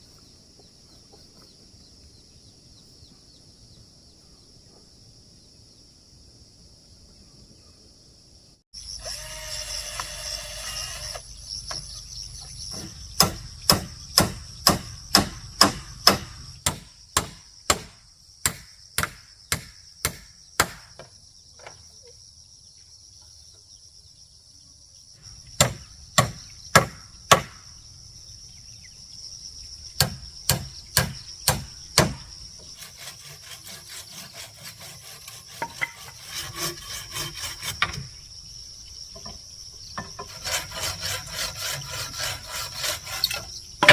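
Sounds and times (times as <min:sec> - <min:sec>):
insects buzzing: 0:00.0 - 0:43.9
rasping rub of wood: 0:32.6 - 0:38.1, 0:40.1 - 0:43.5.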